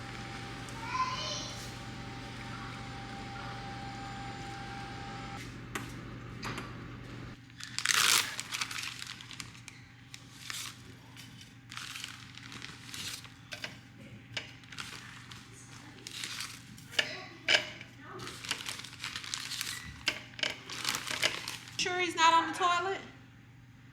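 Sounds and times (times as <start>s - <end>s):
steady low hum: 0.0s - 7.4s
packaging crinkling and tearing: 7.4s - 17.0s, 18.2s - 21.8s.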